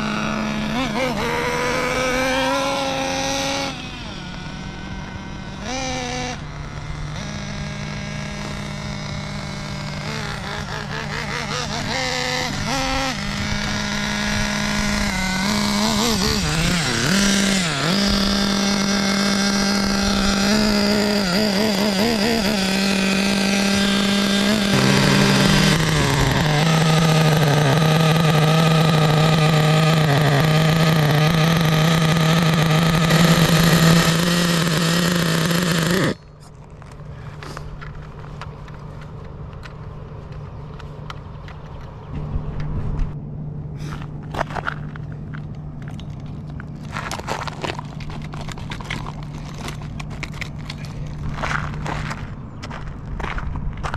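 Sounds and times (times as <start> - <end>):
two-stroke model engine running: 0.0 - 39.4.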